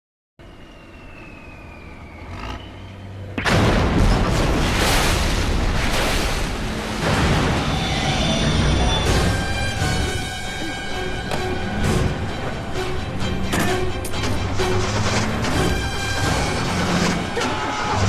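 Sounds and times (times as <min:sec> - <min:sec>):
loud boom and roar: 0:03.4 - 0:10.3
crashing impacts: 0:03.4 - 0:10.6.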